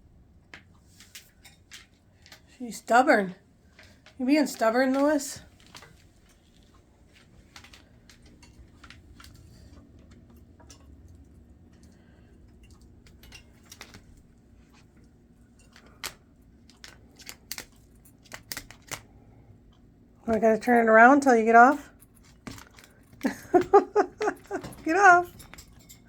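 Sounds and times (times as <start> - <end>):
parrot chewing toy clicks and taps: 15.8 - 19.1.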